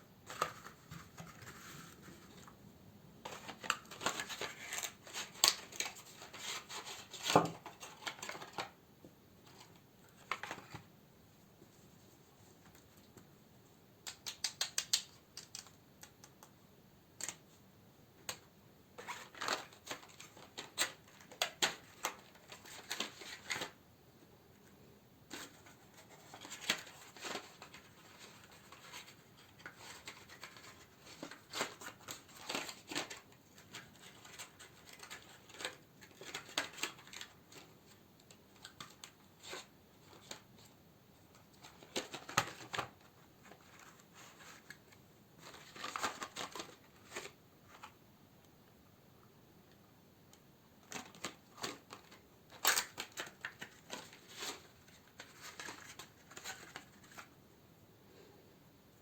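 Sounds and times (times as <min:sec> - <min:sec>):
plastic and paper packaging crinkling: 0:00.2 - 0:02.6, 0:03.2 - 0:08.8, 0:09.4 - 0:10.9, 0:18.2 - 0:23.8, 0:25.2 - 0:48.0, 0:50.8 - 0:57.4.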